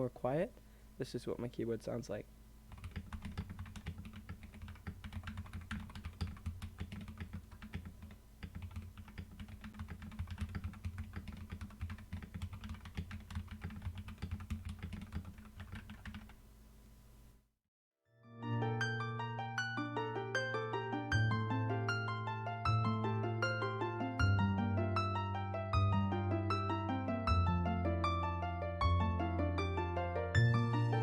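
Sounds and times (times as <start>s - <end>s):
rapid keyboard typing: 2.7s - 16.4s.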